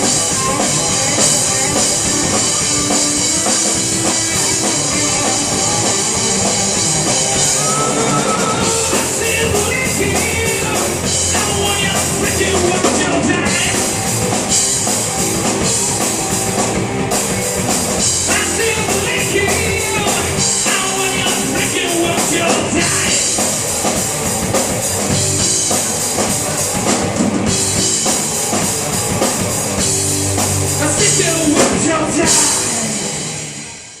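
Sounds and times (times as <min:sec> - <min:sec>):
bass guitar: 0:00.0 - 0:34.0
drum kit: 0:00.0 - 0:34.0
guitar: 0:00.0 - 0:34.0
person singing: 0:07.4 - 0:14.0, 0:18.2 - 0:23.5, 0:30.7 - 0:33.1.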